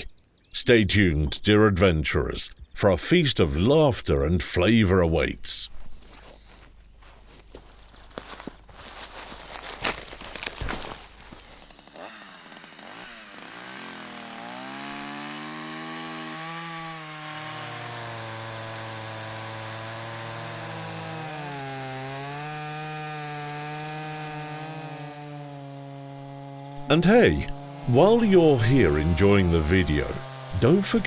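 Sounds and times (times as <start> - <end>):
chainsaw engine revving: 8.4 - 31.0.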